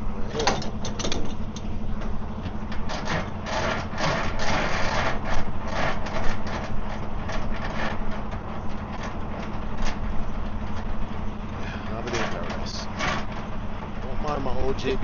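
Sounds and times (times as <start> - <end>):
diesel engine idling: 0.0 - 15.0
hand crank clicking and scraping: 2.7 - 10.9, 11.6 - 15.0.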